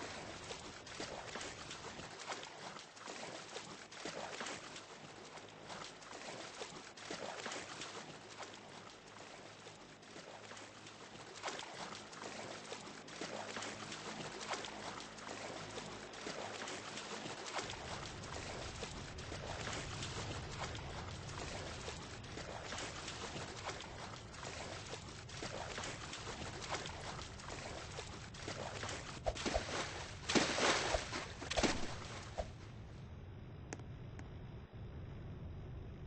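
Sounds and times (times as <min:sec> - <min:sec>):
water splashing and lapping: 0:00.0 - 0:32.8
low rumble: 0:17.7 - 0:36.0.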